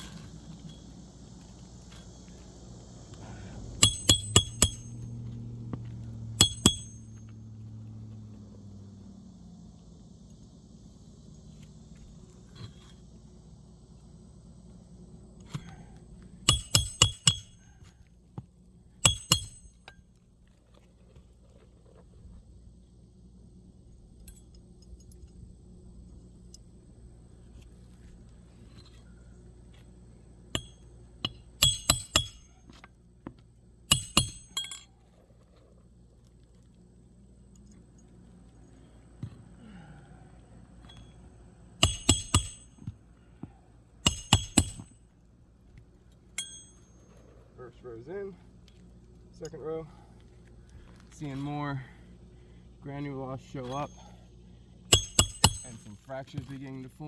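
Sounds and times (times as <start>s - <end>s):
hatchet driving nails: 3.8s - 5.1s, 6.4s - 7.2s, 16.5s - 17.7s, 19.0s - 19.9s, 30.6s - 32.5s, 33.9s - 34.8s, 41.8s - 42.9s, 44.1s - 45.0s, 54.9s - 55.9s.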